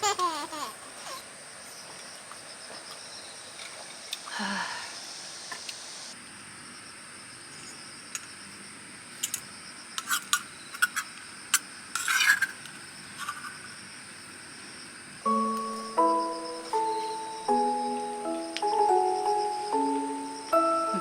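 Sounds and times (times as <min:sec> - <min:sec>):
insects chirring: 0:00.0 - 0:21.0
rustling scrape: 0:12.0 - 0:13.6
music notes: 0:15.3 - 0:21.0.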